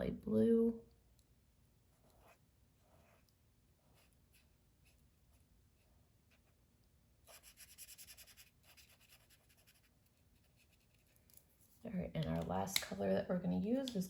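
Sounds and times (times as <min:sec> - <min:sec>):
marker scratching on paper: 0:07.3 - 0:11.1.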